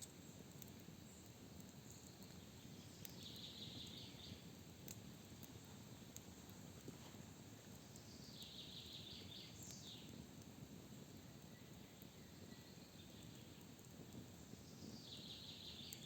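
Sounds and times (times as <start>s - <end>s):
background hiss: 0.0s - 16.0s
songbird singing: 1.9s - 4.4s, 7.8s - 10.1s, 14.7s - 16.0s.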